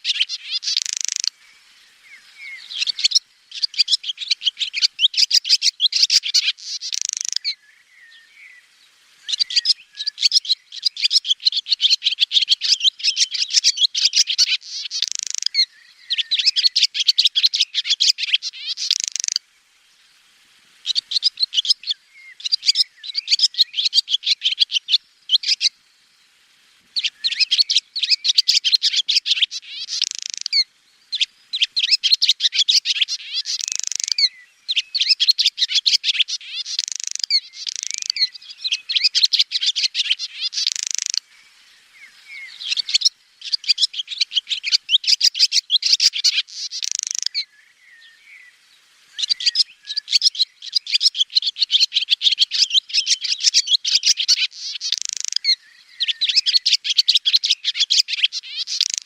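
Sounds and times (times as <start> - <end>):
swallow twittering: 0.0 - 19.4, 20.8 - 25.8, 27.0 - 59.0.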